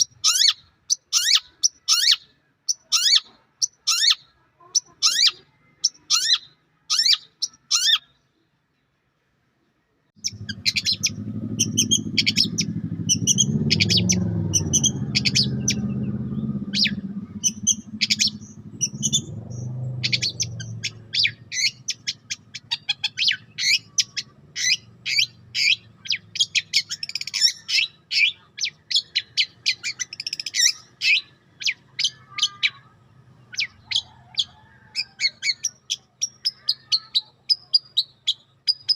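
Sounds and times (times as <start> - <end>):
songbird chirping: 0.0 - 38.9
low rumbling background: 10.2 - 27.4.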